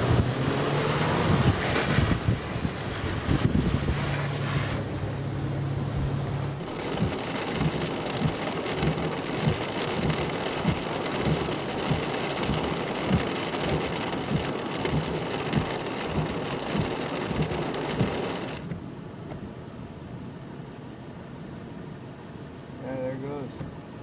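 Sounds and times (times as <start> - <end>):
heavy rain on a vehicle: 0.0 - 19.7
dull hum: 0.0 - 22.8
low thumps: 1.2 - 19.6.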